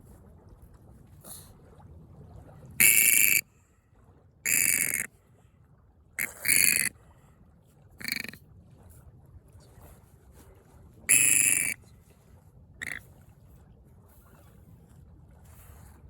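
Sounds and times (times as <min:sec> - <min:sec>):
bird giving harsh calls: 0:02.8 - 0:03.4, 0:04.5 - 0:05.1, 0:06.2 - 0:06.9, 0:08.0 - 0:08.3, 0:11.1 - 0:11.8.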